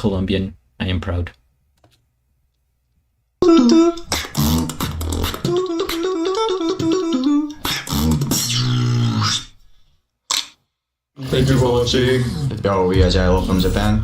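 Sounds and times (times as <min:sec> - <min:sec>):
beatboxing: 0:03.4 - 0:09.6
hummed melody: 0:05.4 - 0:07.6.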